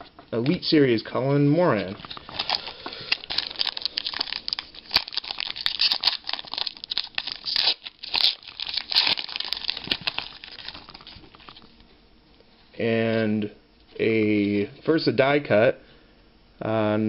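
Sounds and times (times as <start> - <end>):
foil wrapper tearing and crinkling: 2.1 - 11.7.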